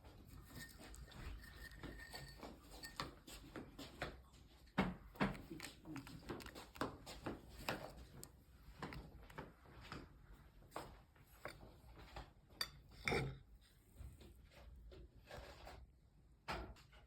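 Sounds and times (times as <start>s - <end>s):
kitchen utensils and dishes clicking: 0.4s - 3.2s.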